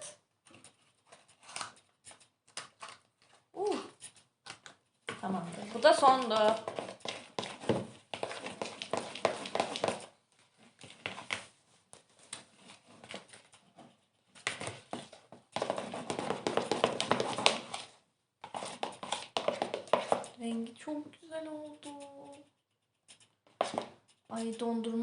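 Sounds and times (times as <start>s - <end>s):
slime squelching while stirred: 5.4s - 10.1s, 12.2s - 20.4s.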